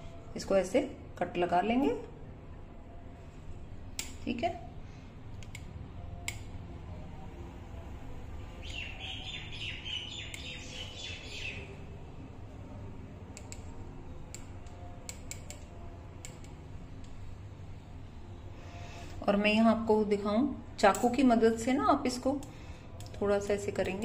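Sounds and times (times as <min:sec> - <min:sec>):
steady low hum: 0:00.0 - 0:24.0
birds chirping: 0:08.6 - 0:11.8.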